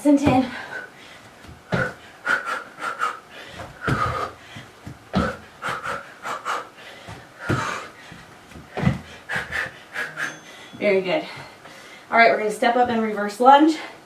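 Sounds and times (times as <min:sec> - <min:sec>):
dull thumps: 0:00.0 - 0:10.1, 0:12.6 - 0:13.2
woman panting: 0:00.2 - 0:12.2.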